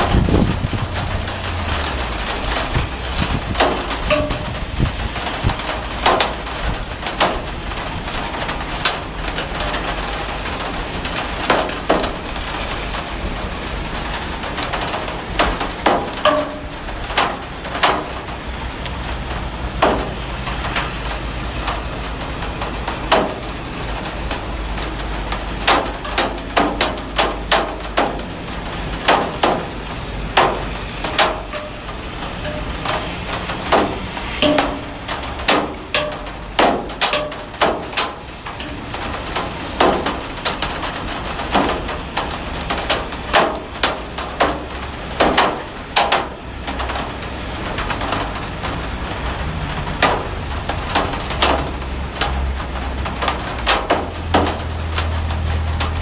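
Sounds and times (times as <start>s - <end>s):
heavy rain falling: 0.0s - 56.0s
drops tapping a hard surface: 3.6s - 4.7s, 30.4s - 33.1s, 33.7s - 39.0s.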